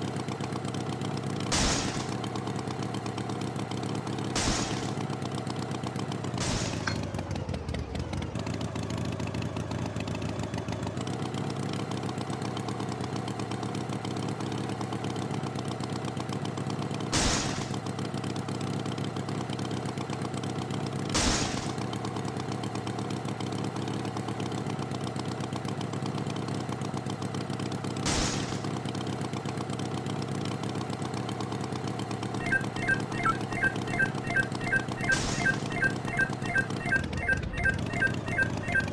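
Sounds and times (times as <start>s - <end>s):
sharp bangs: 1.5s - 2.3s, 4.3s - 5.1s, 6.4s - 7.1s, 17.2s - 17.8s, 21.2s - 21.8s, 28.1s - 28.9s, 32.4s - 38.9s.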